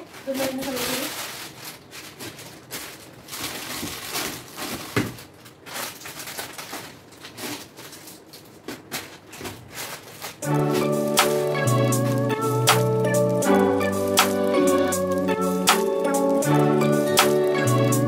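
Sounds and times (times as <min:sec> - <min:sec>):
spice containers rustling and clattering: 0:00.0 - 0:13.5.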